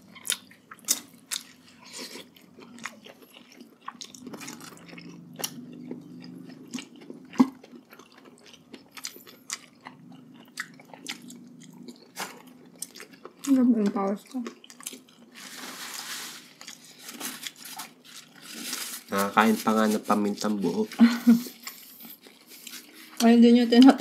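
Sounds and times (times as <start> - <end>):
wet chewing and biting: 0.0 - 15.4, 16.5 - 18.7.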